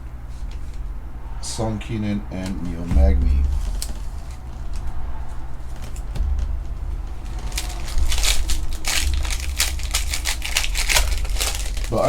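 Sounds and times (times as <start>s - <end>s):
steady low hum: 0.0s - 12.0s
packaging crinkling: 7.2s - 12.0s.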